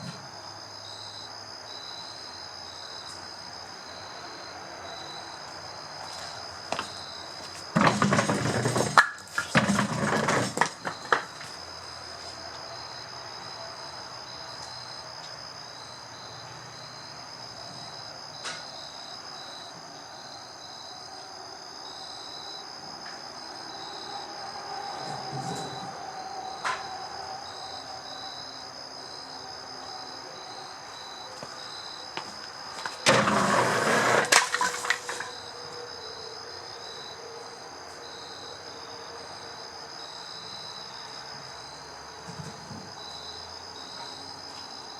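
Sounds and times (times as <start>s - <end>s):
crickets chirping: 0.0s - 44.9s
firewood clattering down a pipe: 7.7s - 11.5s, 32.8s - 35.4s.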